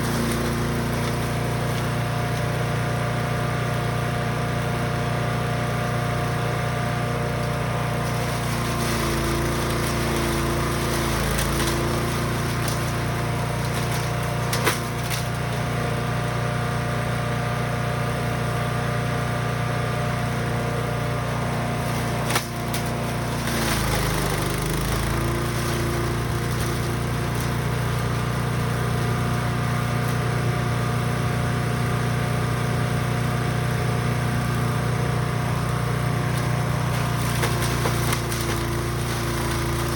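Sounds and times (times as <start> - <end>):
chipper shredder engine running: 0.0 - 39.9.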